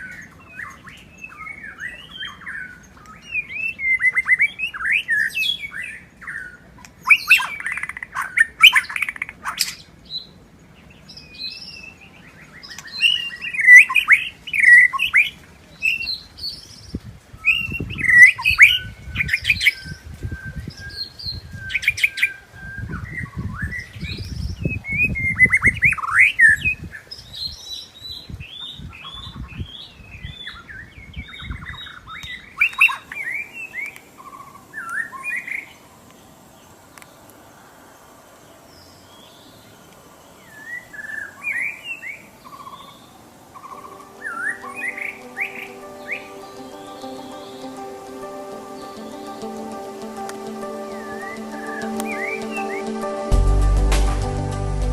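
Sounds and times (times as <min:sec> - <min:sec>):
bird singing whistled phrases: 0:17.4 - 0:26.6, 0:43.6 - 0:47.7.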